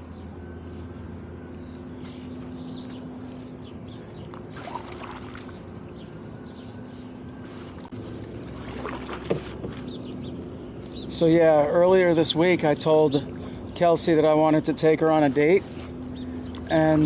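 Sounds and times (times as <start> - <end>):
low mechanical hum: 0.0 - 17.0
paddles splashing in water: 4.5 - 5.7, 8.3 - 10.0.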